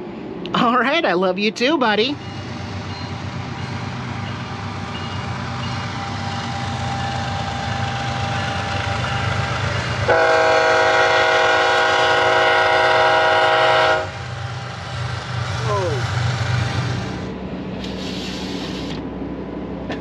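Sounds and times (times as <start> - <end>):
diesel locomotives rumbling past: 0.0 - 20.0
locomotive air horn: 10.1 - 14.2.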